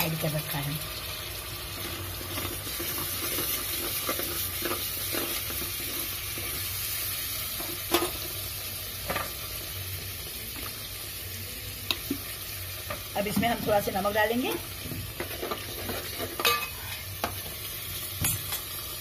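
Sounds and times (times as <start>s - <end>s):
chilli paste sizzling in oil: 0.0s - 19.0s
metal spoon scraping and knocking pot: 2.3s - 6.7s, 14.5s - 17.4s.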